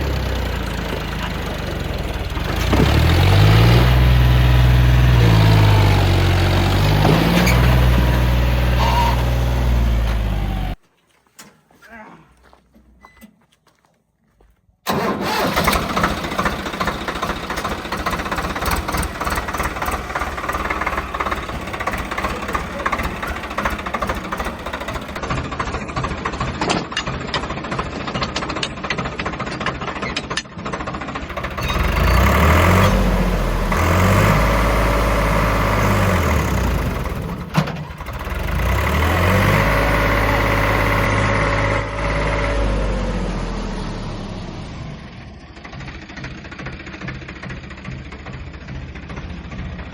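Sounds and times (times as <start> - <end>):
diesel tractor engines running: 0.0 - 10.8, 14.9 - 49.9
engine revving: 0.0 - 10.8, 14.9 - 25.2, 31.3 - 45.3.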